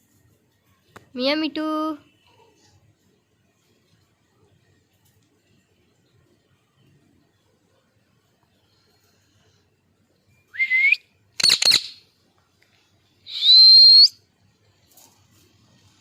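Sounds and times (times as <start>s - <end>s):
parakeet whistling and screeching: 11.4s - 12.0s, 13.3s - 14.2s.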